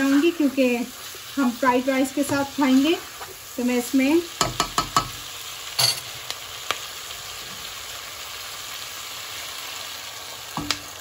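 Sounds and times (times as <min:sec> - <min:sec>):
food sizzling in a pot: 0:00.0 - 0:11.0
spatula knocking against pan: 0:04.4 - 0:05.2.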